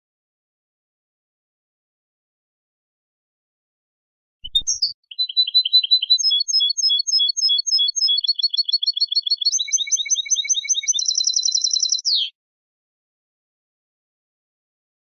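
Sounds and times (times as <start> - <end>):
finch singing chirps and trills: 4.4 - 12.3.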